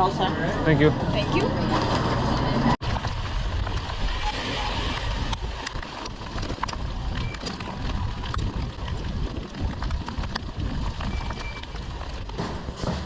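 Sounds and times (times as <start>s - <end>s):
wind rumbling on microphone: 2.8s - 12.4s.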